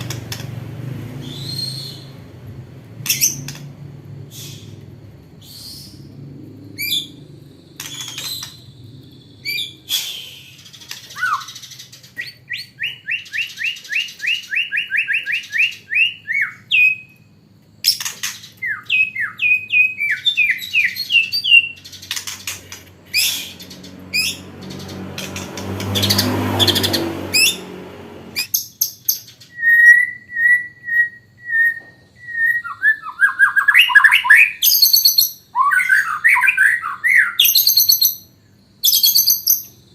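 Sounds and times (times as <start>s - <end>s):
faint low hum: 0.0s - 12.6s
songbird singing varied song: 1.1s - 2.4s, 5.4s - 27.7s, 28.4s - 39.9s.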